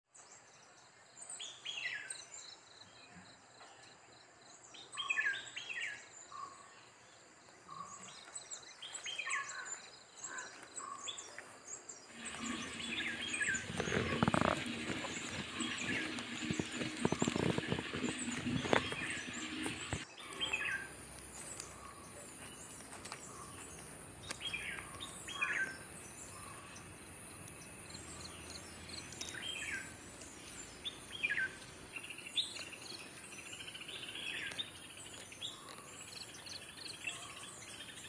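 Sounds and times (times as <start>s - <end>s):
high bird chirps: 12.1s - 26.8s.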